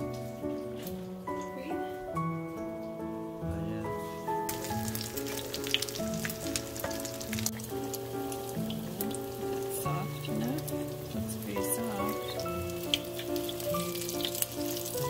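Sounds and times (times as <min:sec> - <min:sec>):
food frying in a pan: 0:00.0 - 0:02.0, 0:04.3 - 0:15.0
gentle background music: 0:00.0 - 0:15.0.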